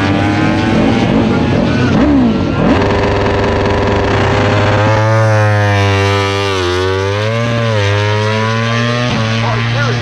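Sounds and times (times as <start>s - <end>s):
racing motorcycle engines revving: 0.0s - 10.0s.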